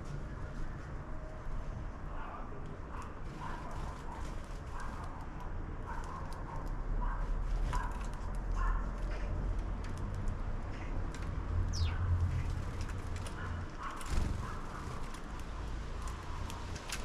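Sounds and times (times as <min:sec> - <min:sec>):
steady low rumble: 0:11.5 - 0:13.0
high bird chirp falling in pitch: 0:11.8 - 0:12.0.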